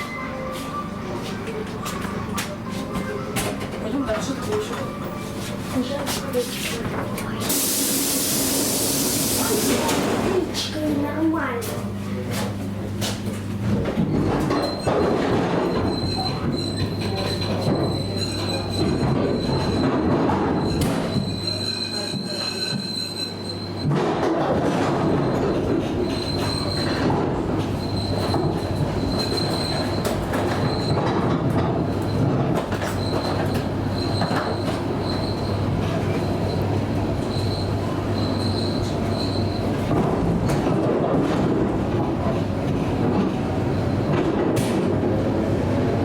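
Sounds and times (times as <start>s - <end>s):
train hum and wheel rumble: 0.0s - 46.0s
high wheel squeal: 15.7s - 23.9s, 26.0s - 27.1s, 27.8s - 31.0s, 32.8s - 39.8s.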